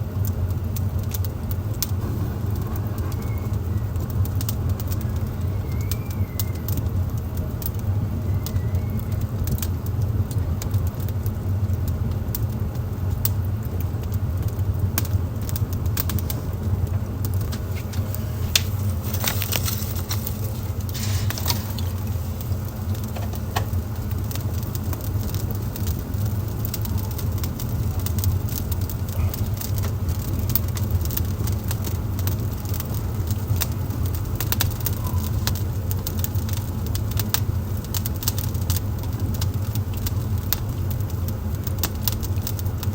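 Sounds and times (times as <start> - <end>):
wood fire crackling and popping: 0.0 - 42.9
steady low rumble: 0.8 - 5.6, 13.8 - 34.9.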